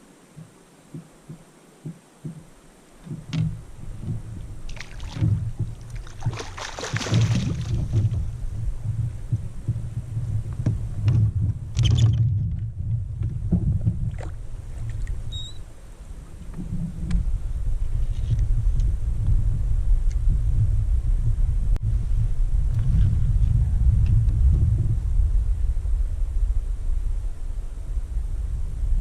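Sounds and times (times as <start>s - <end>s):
small knocks: 0.4s - 4.4s
water splashing: 3.0s - 8.6s, 13.9s - 16.5s
pulsing low rumble: 3.1s - 29.0s.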